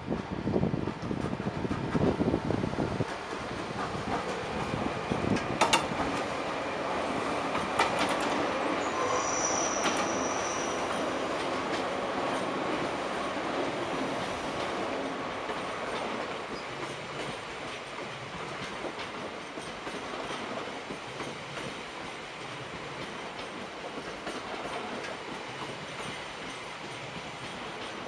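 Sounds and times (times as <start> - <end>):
wheels clicking over rail joints: 3.0 - 6.3, 7.5 - 8.4
wheel squeal: 8.8 - 11.0.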